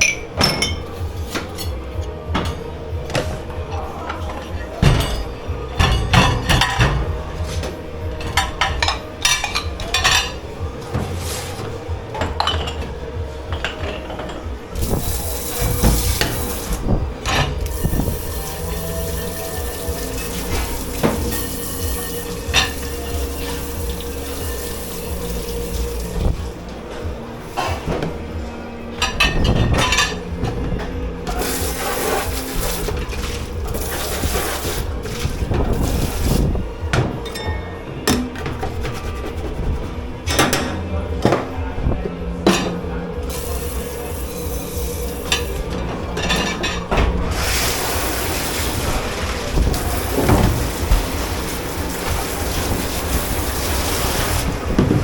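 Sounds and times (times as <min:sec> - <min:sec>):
dishes and cutlery clattering: 0:00.0 - 0:03.4, 0:04.1 - 0:12.9, 0:13.5 - 0:26.4, 0:29.0 - 0:36.2, 0:42.4 - 0:47.5
steady hum: 0:12.9 - 0:55.0
water spraying hiss: 0:14.8 - 0:17.0, 0:17.6 - 0:26.6, 0:31.3 - 0:36.6, 0:43.3 - 0:45.6, 0:47.3 - 0:55.0.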